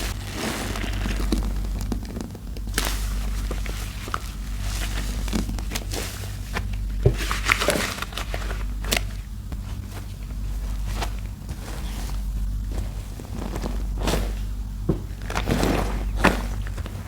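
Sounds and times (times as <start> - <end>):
sponge squelching in soap paste: 9.6 - 17.0.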